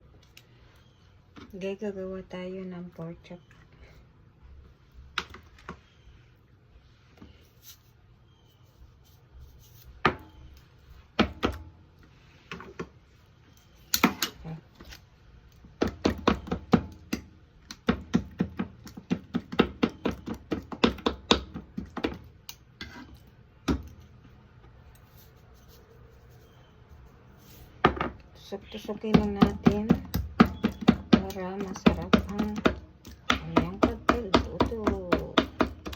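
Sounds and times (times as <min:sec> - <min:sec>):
utensil knocking on work surface: 0:29.1 - 0:35.9.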